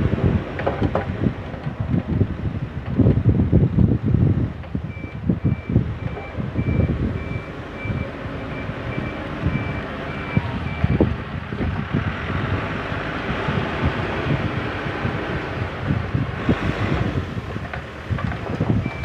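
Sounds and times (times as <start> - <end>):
diesel engine rumbling: 0.0 - 19.0
wind buffeting microphone: 0.0 - 19.0
reversing alarm beeping: 4.9 - 11.1.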